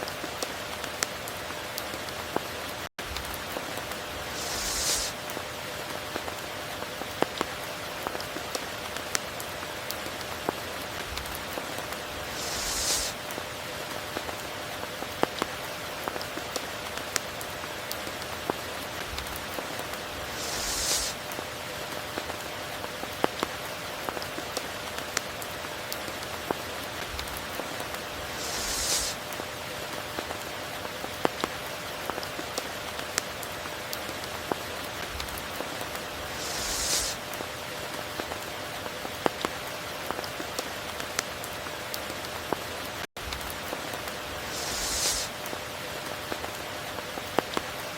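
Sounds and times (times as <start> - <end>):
heavy rain: 0.0 - 47.9
brief bright rush: 4.3 - 5.2, 12.3 - 13.2, 36.3 - 37.2, 44.5 - 45.3.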